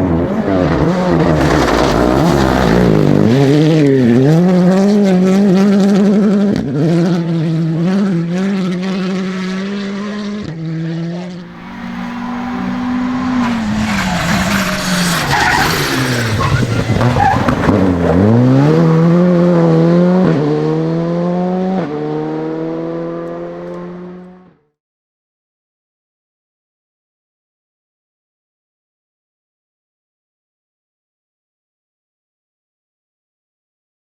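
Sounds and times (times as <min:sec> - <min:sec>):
rally car engine revving: 0:00.0 - 0:24.6.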